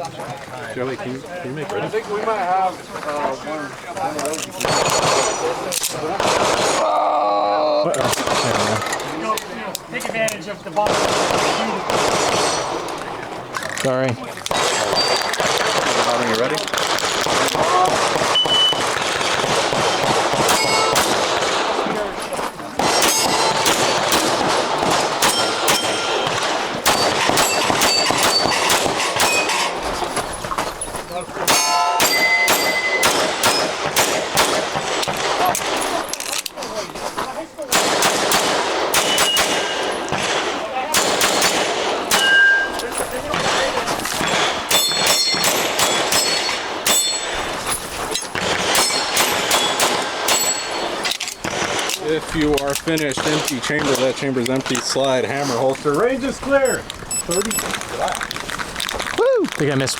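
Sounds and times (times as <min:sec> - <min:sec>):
pistol shots: 0:04.6 - 0:06.9, 0:08.0 - 0:09.3, 0:10.8 - 0:13.1, 0:14.5 - 0:22.2, 0:22.8 - 0:30.1, 0:31.4 - 0:36.0, 0:37.7 - 0:54.6
steel targets ringing: 0:18.3 - 0:18.9, 0:20.5 - 0:21.2, 0:22.8 - 0:24.0, 0:25.2 - 0:29.8, 0:31.5 - 0:33.8, 0:39.0 - 0:40.1, 0:42.1 - 0:43.2, 0:44.2 - 0:47.7, 0:48.7 - 0:51.1.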